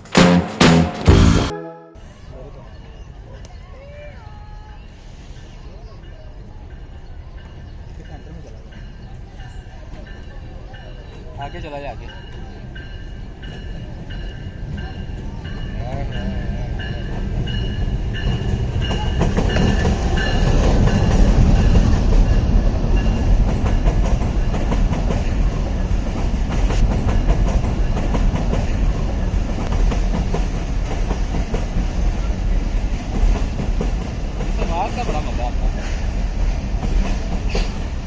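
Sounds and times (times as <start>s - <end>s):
train rumbling: 0.0s - 1.5s, 13.9s - 38.0s
clickety-clack of train wheels: 6.8s - 38.0s.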